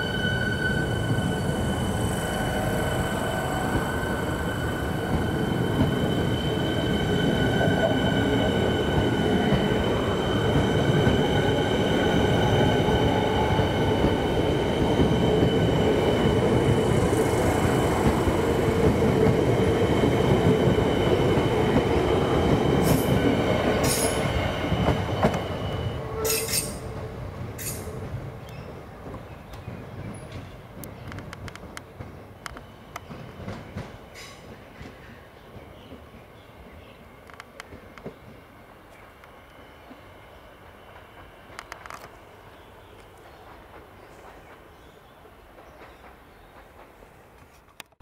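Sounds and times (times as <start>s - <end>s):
high-pitched train squeal: 0.0s - 14.0s, 22.8s - 27.0s, 27.6s - 28.0s
train wheels rumbling on rail: 0.0s - 42.4s, 43.0s - 48.0s.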